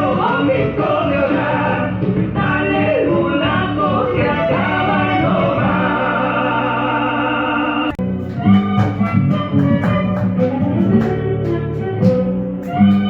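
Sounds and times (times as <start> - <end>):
strummed guitar with drum beats: 8.0 - 13.0.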